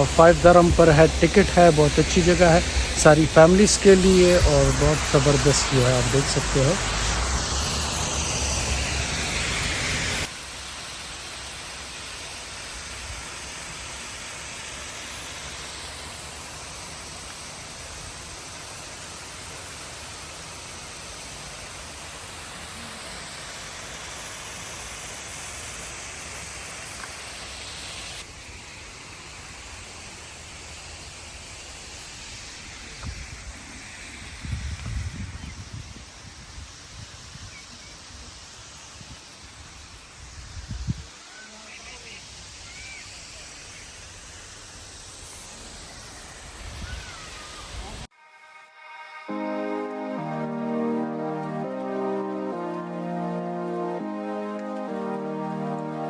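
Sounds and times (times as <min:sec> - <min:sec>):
waterfall rushing: 0:00.0 - 0:34.7.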